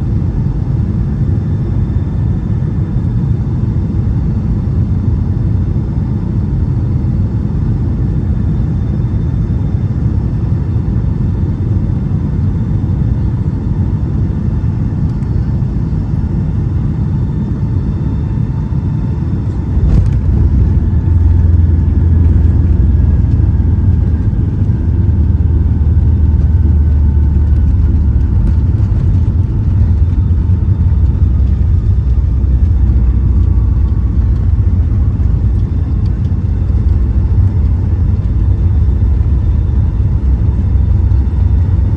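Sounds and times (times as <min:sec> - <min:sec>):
aircraft cabin rumble: 0:00.0 - 0:41.9
faint whine falling in pitch: 0:14.6 - 0:41.9.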